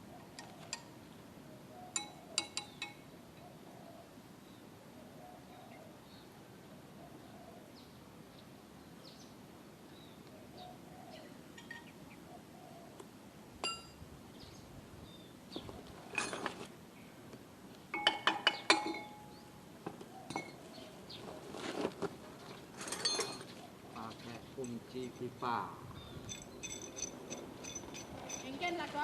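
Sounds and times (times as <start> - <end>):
metal tools clinking: 11.6 - 11.9, 16.1 - 16.6, 18.0 - 19.3, 20.3 - 20.6, 22.8 - 23.5, 24.6 - 25.4, 26.2 - 29.0.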